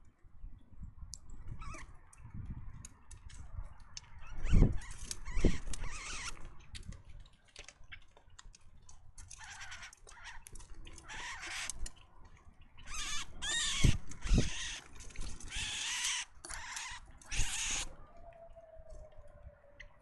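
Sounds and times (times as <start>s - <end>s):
birds harsh calls: 4.2s - 6.5s, 9.2s - 12.1s, 12.8s - 17.9s.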